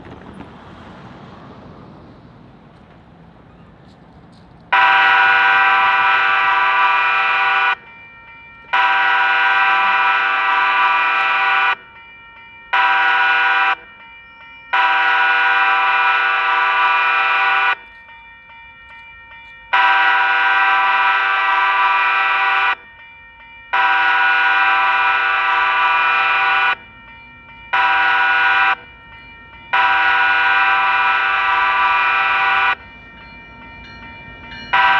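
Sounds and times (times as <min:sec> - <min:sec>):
low train rumble: 0:00.0 - 0:34.9
locomotive air horn: 0:04.7 - 0:07.9, 0:08.7 - 0:11.9, 0:12.7 - 0:13.9, 0:14.7 - 0:18.0, 0:19.7 - 0:22.8, 0:23.7 - 0:26.9, 0:27.7 - 0:28.9, 0:29.7 - 0:32.9.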